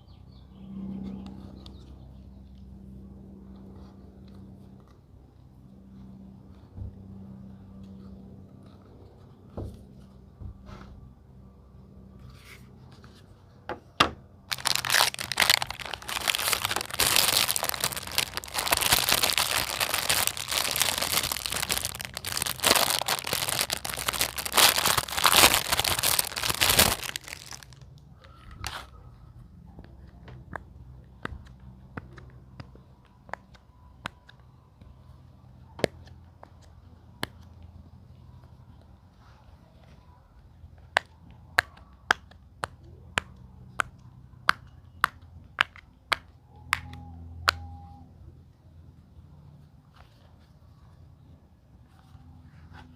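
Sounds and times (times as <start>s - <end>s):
plastic packaging crinkling and tearing: 14.5s - 27.9s.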